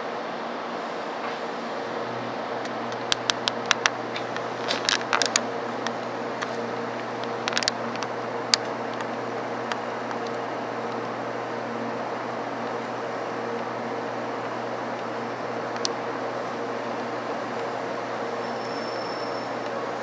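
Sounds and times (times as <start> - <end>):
train cabin hum: 0.0 - 20.0
sharp clicks and rattles: 2.6 - 11.0.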